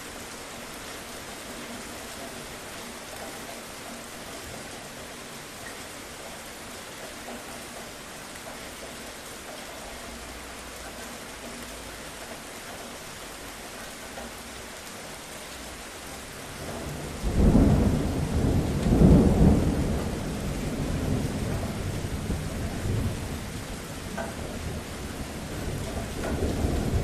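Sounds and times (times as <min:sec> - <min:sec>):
steady rain: 0:00.0 - 0:27.0
thunder clap rumbling: 0:16.6 - 0:27.0.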